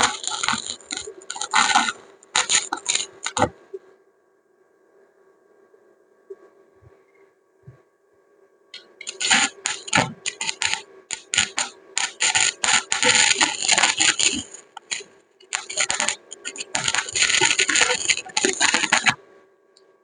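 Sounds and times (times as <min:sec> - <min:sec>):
welding arc crackling: 0:00.0 - 0:03.5, 0:08.8 - 0:19.2.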